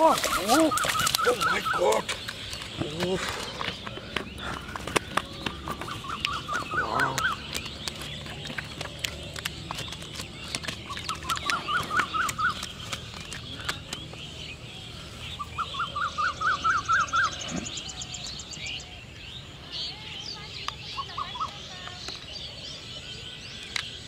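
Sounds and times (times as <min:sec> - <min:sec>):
bird calling rising notes: 0:00.0 - 0:09.1.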